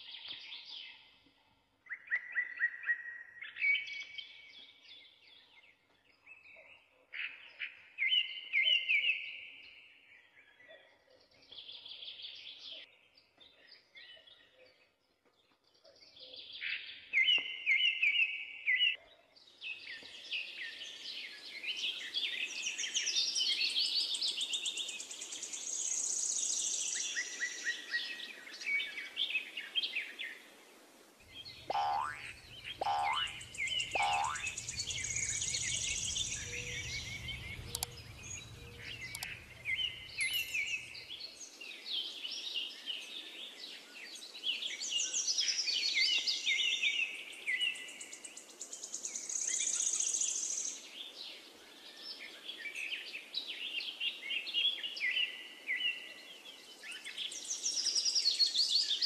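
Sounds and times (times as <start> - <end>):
songbirds chirping: 0.0 - 59.0
steady hiss: 32.4 - 41.1.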